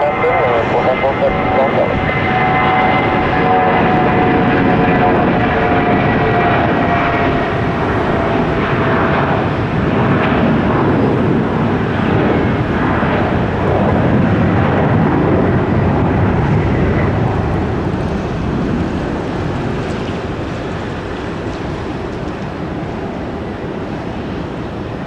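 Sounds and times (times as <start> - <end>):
whine: 0.0 - 14.1
aircraft engine noise: 0.0 - 25.0.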